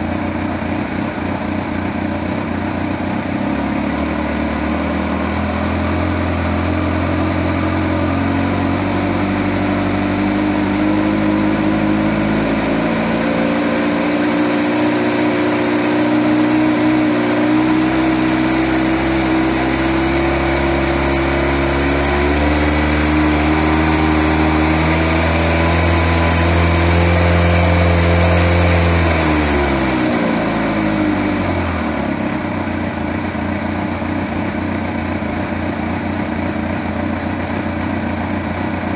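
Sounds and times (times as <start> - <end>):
engine ticking noise: 0.0 - 13.6, 29.0 - 38.9
motorcycle engine revving: 0.0 - 38.9.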